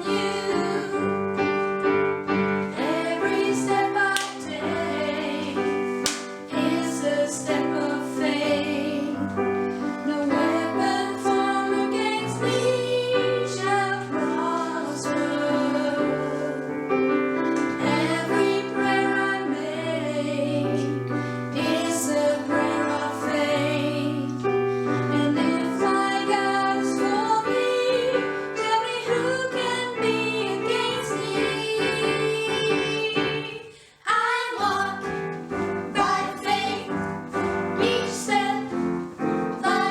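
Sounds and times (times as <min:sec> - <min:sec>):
people singing: 0:00.0 - 0:39.9.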